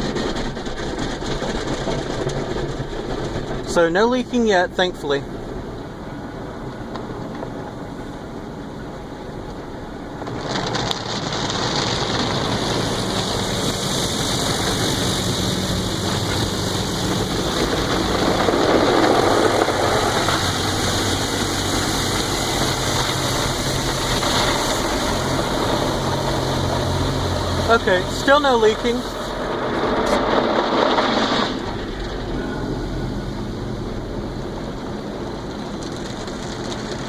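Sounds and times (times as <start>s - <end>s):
car engine idling: 0.0s - 37.0s
car wash spraying water: 0.0s - 37.0s.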